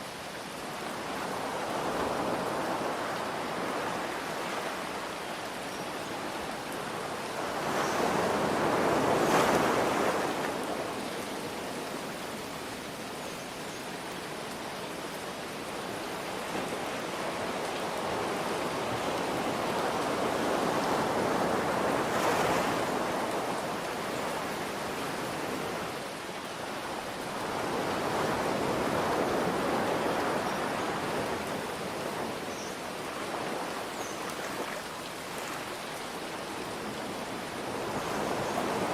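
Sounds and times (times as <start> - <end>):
ocean waves breaking: 7.0 - 11.3.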